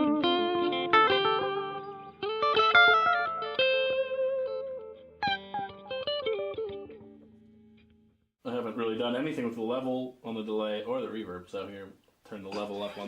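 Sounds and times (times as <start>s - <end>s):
electric guitar with echo delay: 0.0s - 7.8s.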